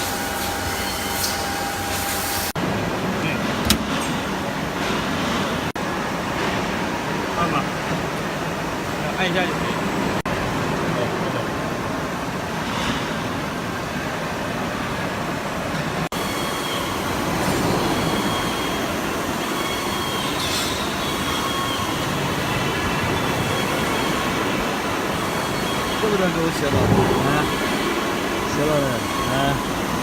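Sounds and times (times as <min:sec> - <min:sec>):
press brake mechanical noise: 0:03.4 - 0:04.4.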